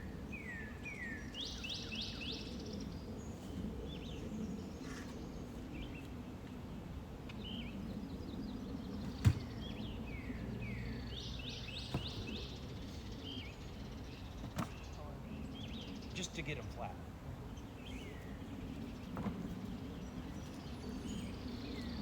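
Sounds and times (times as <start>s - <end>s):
outdoor background noise: 0.0s - 22.0s
small birds chirping: 0.0s - 22.0s.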